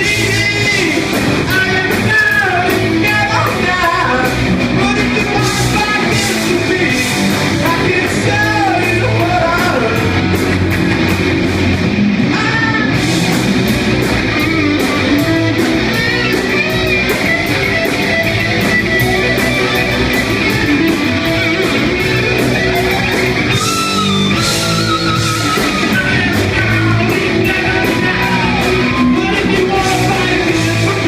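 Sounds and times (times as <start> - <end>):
distorted electric guitar lead: 0.0 - 31.0
heavy rock band playing: 0.0 - 31.0.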